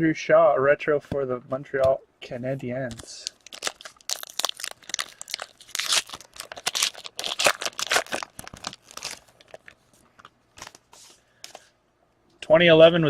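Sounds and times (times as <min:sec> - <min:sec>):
plastic wrapper crinkling and tearing: 0:02.9 - 0:10.8.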